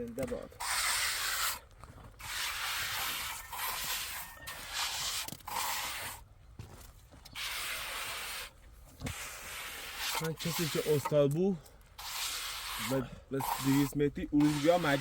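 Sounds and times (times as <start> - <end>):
scratchy scraping strokes: 0.5 - 6.3, 7.4 - 11.2, 12.0 - 15.0.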